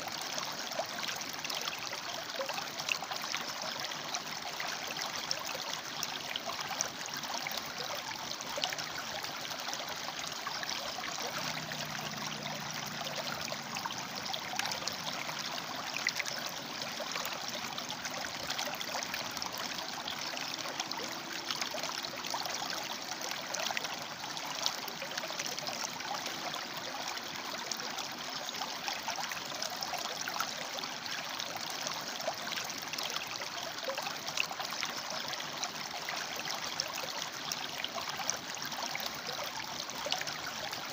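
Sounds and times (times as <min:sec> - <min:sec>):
river water rushing over rocks: 0:10.4 - 0:27.5.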